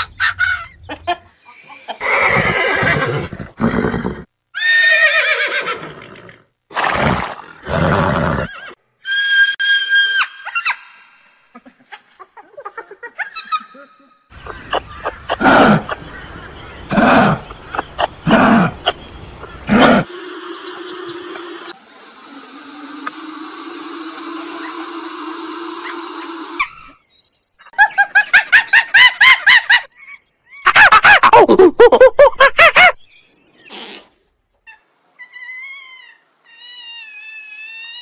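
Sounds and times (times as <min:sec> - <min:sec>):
animal calls: 0:13.2 - 0:27.0.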